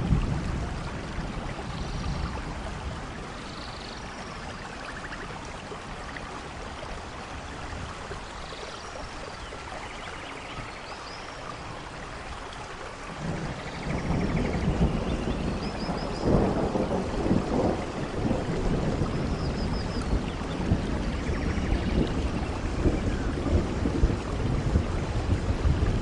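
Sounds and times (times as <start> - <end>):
low thunder rumble: 0.0 - 3.5, 13.1 - 26.0
rain falling: 0.0 - 26.0.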